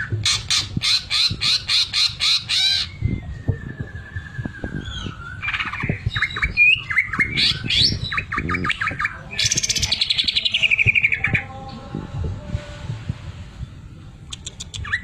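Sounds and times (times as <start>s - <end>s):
bird chirping and whistling: 0.2s - 11.5s, 14.3s - 15.0s.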